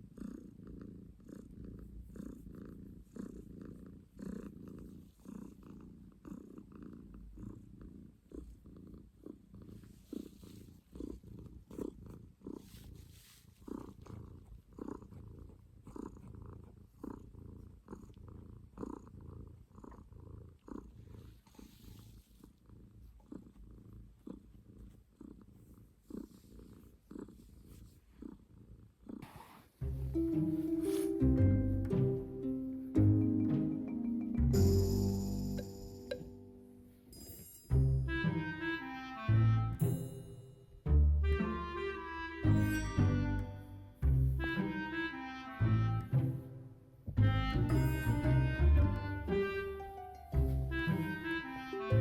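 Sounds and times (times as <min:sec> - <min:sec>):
cat purring: 0:00.0 - 0:38.1.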